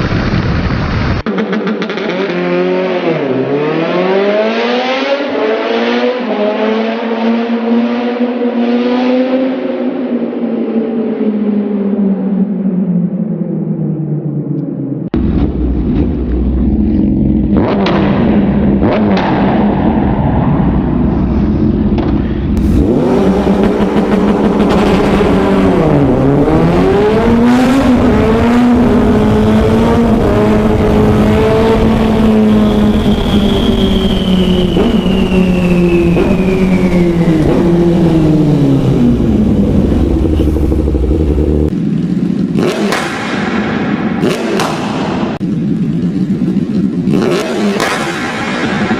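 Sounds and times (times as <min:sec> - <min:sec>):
motorcycle engines revving: 0:00.0 - 0:12.5, 0:15.0 - 0:20.2, 0:21.0 - 0:48.9
high whine gliding down: 0:31.7 - 0:41.8.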